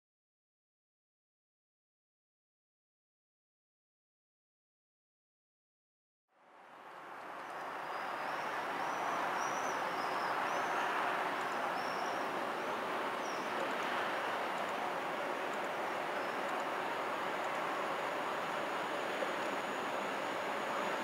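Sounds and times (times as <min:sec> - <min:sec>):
distant train approaching: 0:06.5 - 0:21.0
birds chirping: 0:07.6 - 0:13.8, 0:14.5 - 0:17.6.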